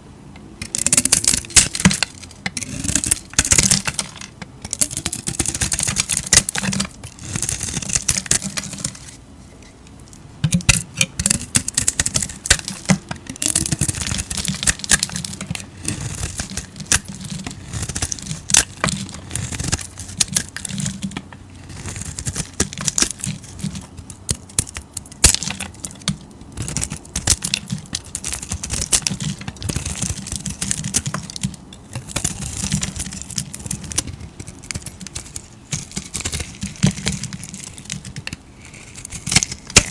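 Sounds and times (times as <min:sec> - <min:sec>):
knife cutting dry soap: 0:00.6 - 0:09.2, 0:10.4 - 0:39.9.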